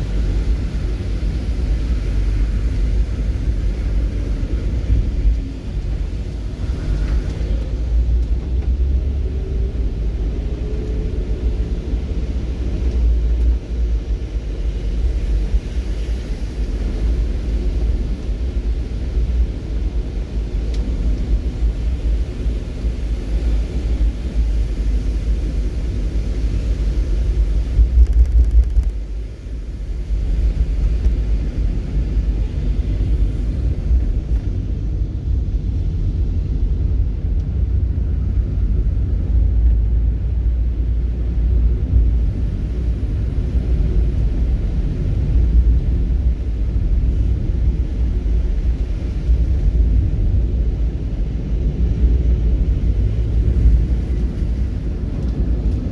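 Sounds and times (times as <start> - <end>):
wavering low rumble: 23.8 - 55.9.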